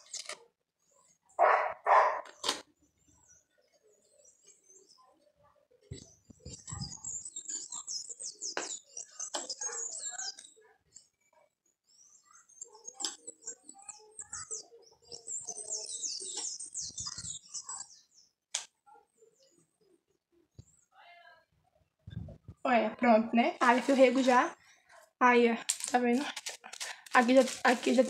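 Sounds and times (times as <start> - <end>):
small birds chattering: 1.0 - 21.0.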